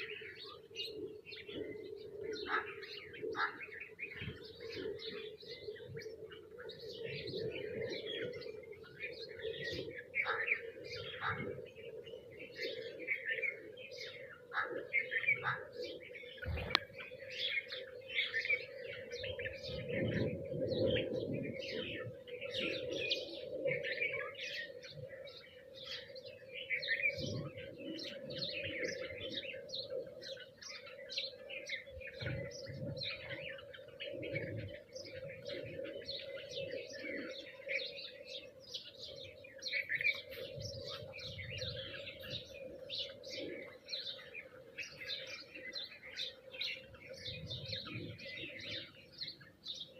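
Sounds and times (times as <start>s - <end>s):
flock of birds chirping: 0.0s - 49.9s.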